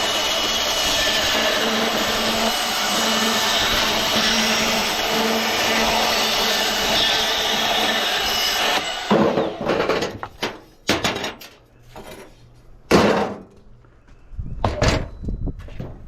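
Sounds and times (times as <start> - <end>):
power tool cutting aluminum: 0.0 - 10.1.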